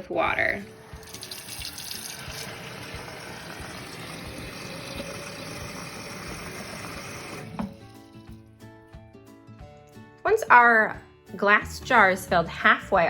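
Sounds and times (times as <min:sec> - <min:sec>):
water running into glass jar: 0:00.3 - 0:08.5.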